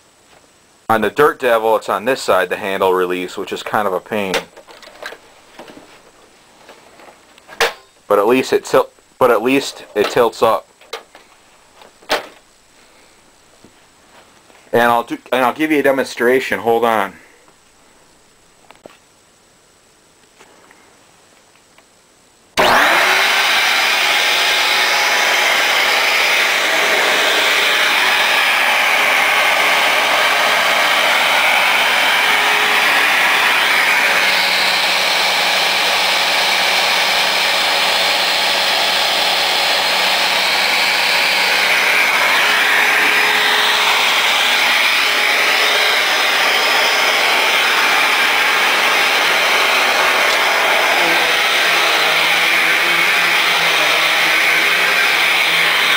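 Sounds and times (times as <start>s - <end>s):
vacuum cleaner running: 22.6s - 55.9s.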